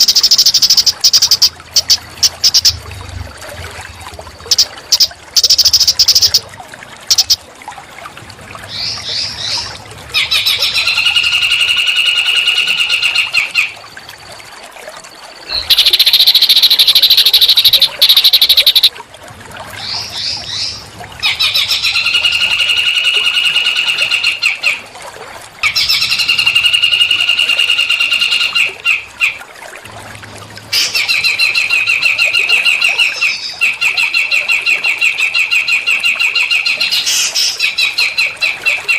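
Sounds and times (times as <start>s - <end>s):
songbird buzzy trills: 0.0s - 2.8s, 4.4s - 7.4s, 15.4s - 18.9s.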